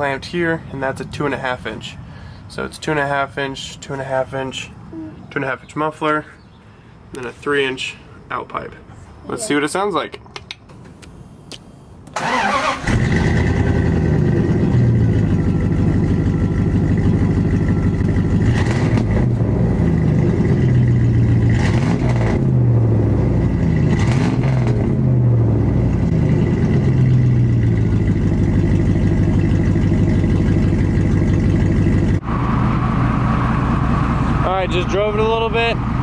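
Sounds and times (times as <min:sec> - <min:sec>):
car engine starting and running: 0:12.0 - 0:36.0.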